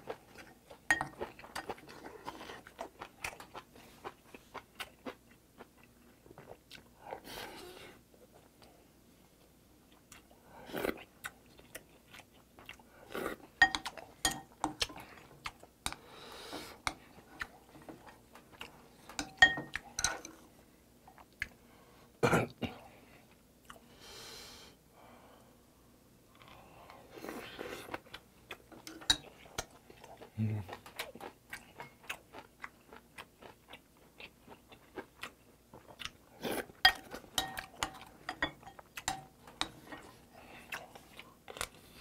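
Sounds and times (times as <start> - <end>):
spoon clinking against bowl: 13.6 - 14.8, 19.2 - 20.3, 36.9 - 39.7
wet chewing sounds: 27.3 - 42.0.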